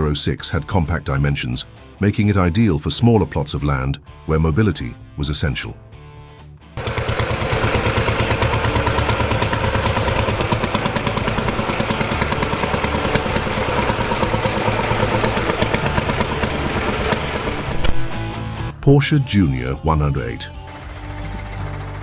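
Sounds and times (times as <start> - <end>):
tractor engine running: 6.7 - 22.0.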